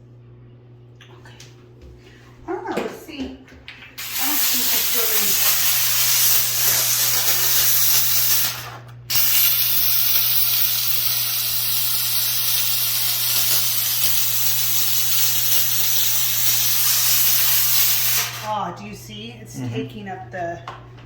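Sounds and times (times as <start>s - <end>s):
steady low hum: 0.0s - 21.0s
steam cleaner hissing: 4.0s - 18.6s.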